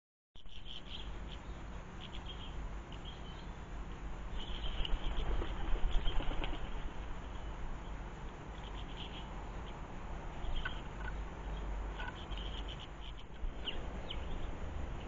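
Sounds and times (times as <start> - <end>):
small birds chirping: 0.4 - 15.0
wing flutters: 4.4 - 7.1.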